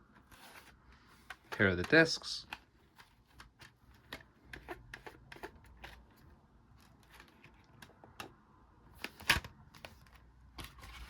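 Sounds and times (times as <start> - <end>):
plastic dvd case clicking: 0.4 - 6.1, 9.0 - 11.0.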